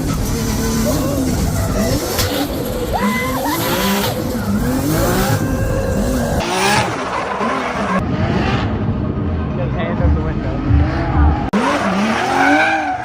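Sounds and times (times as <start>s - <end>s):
tyres squealing: 0.0s - 8.0s
car engine revving hard: 0.0s - 9.0s, 10.4s - 13.0s.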